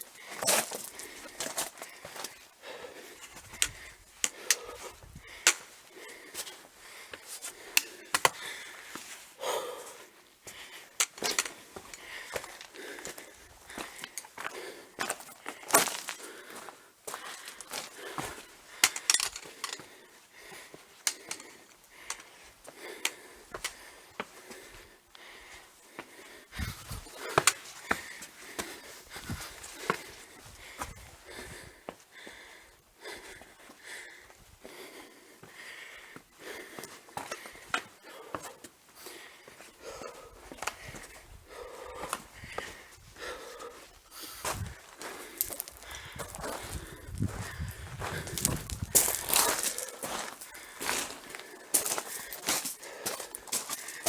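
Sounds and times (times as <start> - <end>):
person breathing hard: 0.0 - 54.0
footsteps on gravel and stones: 0.1 - 2.4, 10.5 - 24.8, 26.0 - 31.0, 42.0 - 54.0.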